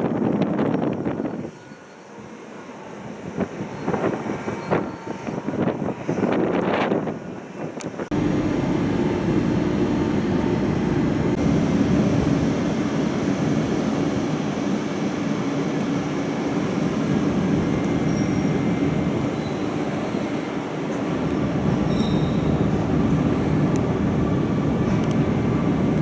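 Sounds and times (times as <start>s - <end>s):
wind buffeting microphone: 0.0s - 1.6s, 3.0s - 26.0s
train rumbling: 8.0s - 26.0s.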